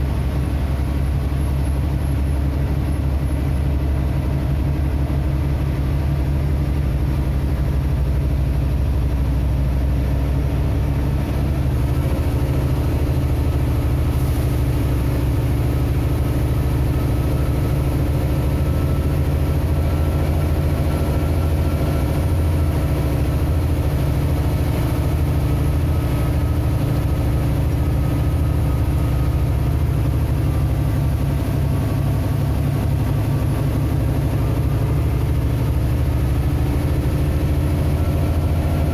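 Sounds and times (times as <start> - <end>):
road noise: 0.0 - 38.9
vehicle engine droning: 0.0 - 38.9.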